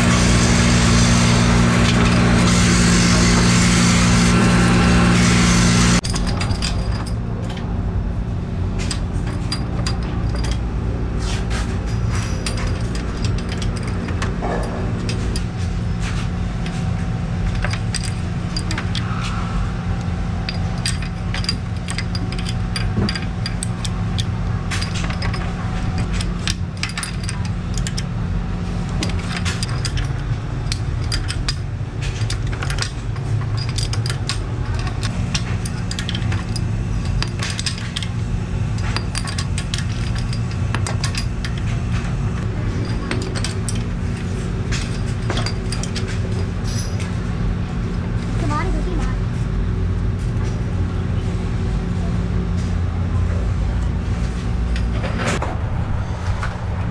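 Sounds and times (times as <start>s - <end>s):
workshop machinery humming: 0.0s - 56.9s
metal parts clinking: 8.8s - 10.7s, 11.3s - 16.8s, 17.4s - 19.1s, 20.5s - 28.0s, 28.9s - 47.2s.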